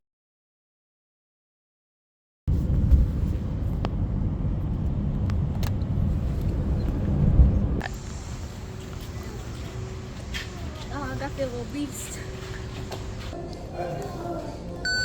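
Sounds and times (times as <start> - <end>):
loud low rumble: 2.5 - 8.7.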